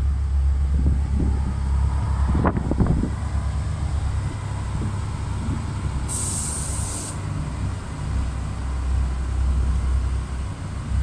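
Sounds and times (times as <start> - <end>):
diesel train passing: 0.0 - 11.0
short hiss: 6.1 - 7.2.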